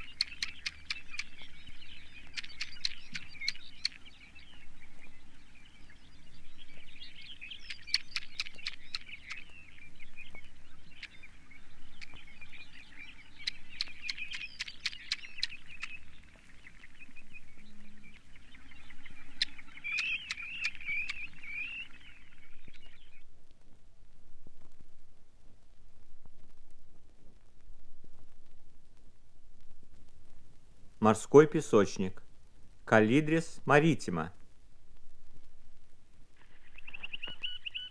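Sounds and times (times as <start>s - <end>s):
bird trills and chatter: 0.0s - 23.2s, 36.4s - 37.9s
vinyl record crackle: 0.0s - 37.9s.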